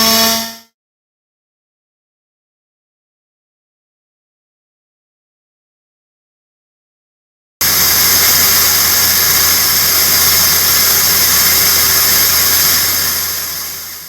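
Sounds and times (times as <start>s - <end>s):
lathe hissing cutting noise: 7.6s - 14.0s
low machine hum: 7.6s - 14.0s.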